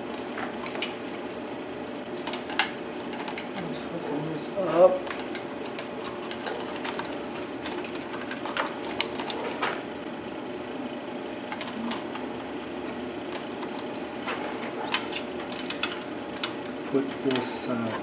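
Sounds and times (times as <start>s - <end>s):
steady background hum: 0.0s - 18.0s
wire connectors clicking: 2.1s - 3.7s, 5.0s - 9.8s, 13.3s - 17.7s.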